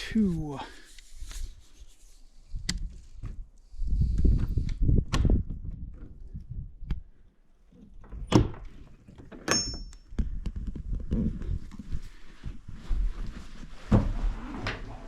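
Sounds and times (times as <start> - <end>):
knock with high ringing tone: 9.5 - 9.9.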